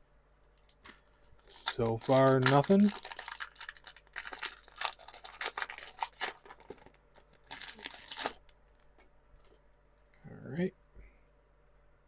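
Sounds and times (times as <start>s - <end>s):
foil wrapper crinkling: 0.6s - 8.8s
foil tearing rip: 1.6s - 6.8s, 7.4s - 8.4s.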